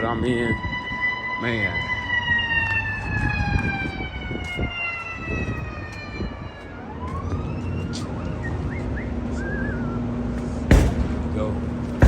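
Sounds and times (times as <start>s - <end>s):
siren wailing: 0.0s - 9.0s.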